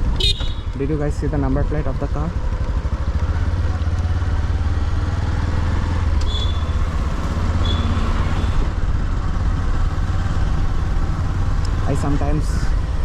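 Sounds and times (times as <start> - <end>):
motorcycle engine running: 0.0 - 13.0
road and wind noise: 0.0 - 13.0.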